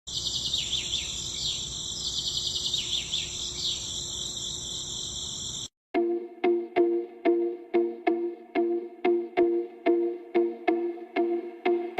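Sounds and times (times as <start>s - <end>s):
insects trilling: 0.1s - 5.7s
music: 6.0s - 11.9s.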